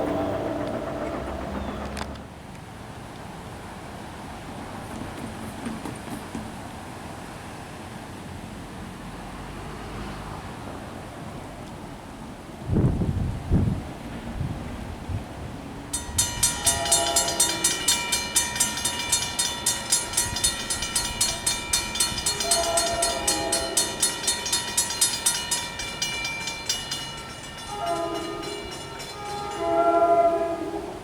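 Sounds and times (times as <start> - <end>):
crossing bell ringing rapidly: 0.0 - 2.0, 15.9 - 30.2
train horn blasts: 0.0 - 2.1, 16.2 - 18.1, 22.0 - 24.3, 27.6 - 31.0.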